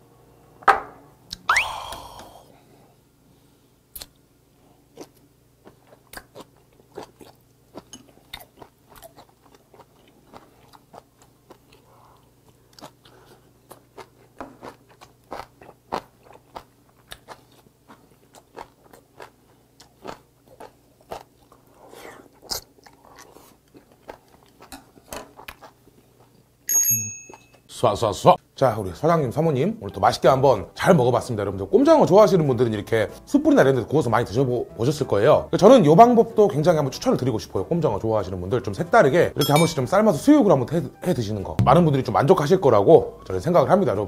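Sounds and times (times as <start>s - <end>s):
chewing with sharp mouth clicks: 4.9s - 26.5s.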